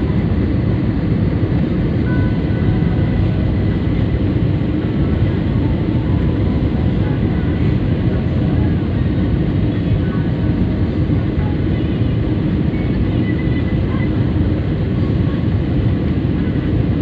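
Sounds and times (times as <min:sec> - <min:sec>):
airliner engines rumbling in cabin: 0:00.0 - 0:17.0.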